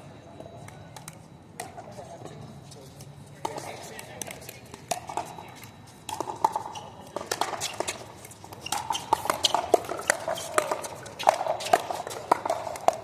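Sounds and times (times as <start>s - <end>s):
paddles hitting plastic ball: 3.4s - 13.0s.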